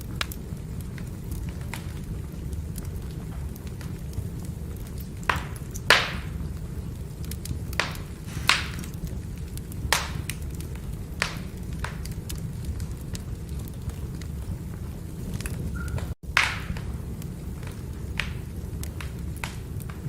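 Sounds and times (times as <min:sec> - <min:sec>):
firewood crackling: 0:00.0 - 0:20.0
sharp pops of fire: 0:00.0 - 0:20.0
low rumble: 0:08.2 - 0:09.4.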